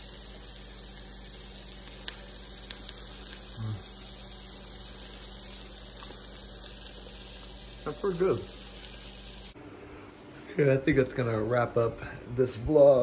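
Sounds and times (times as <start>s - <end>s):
steady hiss: 0.0s - 9.6s
man humming mm: 3.4s - 4.1s.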